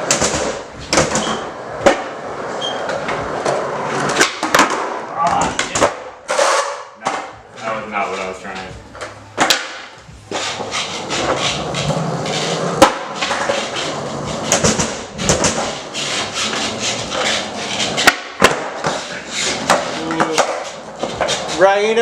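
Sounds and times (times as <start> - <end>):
skateboard knocking down: 0.0 - 2.2, 2.9 - 7.3, 9.4 - 12.0, 12.8 - 15.8, 16.5 - 21.4
skateboard rolling on hard floor: 0.0 - 22.0.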